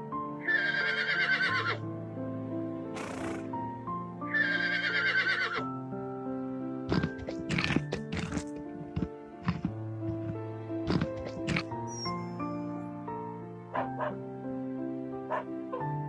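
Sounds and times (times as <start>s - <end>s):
background music: 0.0s - 16.0s
horse whinnying: 0.4s - 1.8s, 4.3s - 5.6s, 10.9s - 12.2s
horse breathy snort: 2.9s - 3.6s, 6.9s - 11.8s
sharp knocks: 6.9s - 11.6s.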